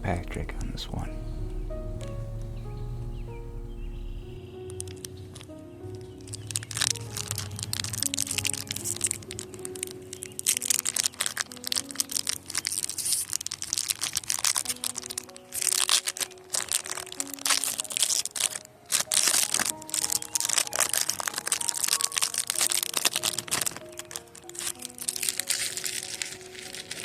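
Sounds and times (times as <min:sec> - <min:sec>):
soft background music: 0:00.0 - 0:27.0
foil wrapper crinkling: 0:07.9 - 0:27.0.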